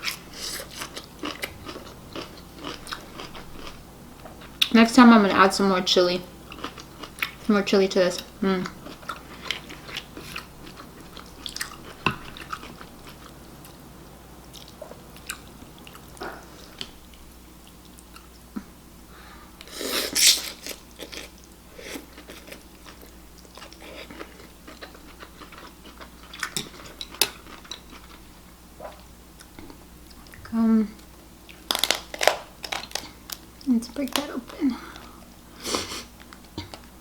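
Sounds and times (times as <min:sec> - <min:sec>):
person chewing food: 0:00.0 - 0:04.7, 0:06.5 - 0:07.5, 0:08.2 - 0:13.8, 0:14.5 - 0:18.6, 0:19.6 - 0:30.4, 0:31.4 - 0:33.6.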